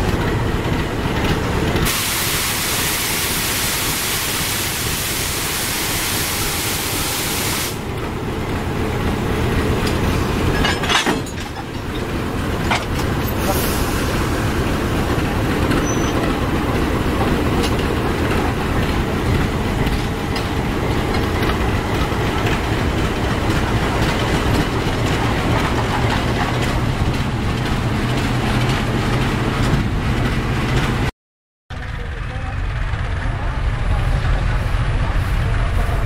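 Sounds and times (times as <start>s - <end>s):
diesel locomotive engine rumble: 0.0s - 31.1s, 31.7s - 36.0s
train wheels clattering on rails: 8.0s - 13.8s, 15.0s - 31.1s.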